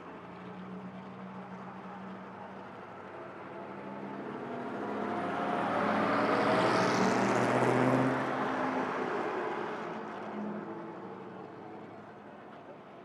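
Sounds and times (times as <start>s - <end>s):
race car engine driving past: 3.7s - 11.2s.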